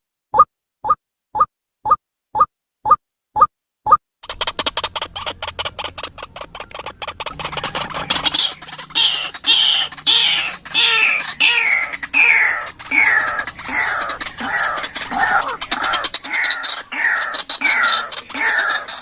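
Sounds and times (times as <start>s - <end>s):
waterhen harsh falling calls: 4.2s - 19.0s.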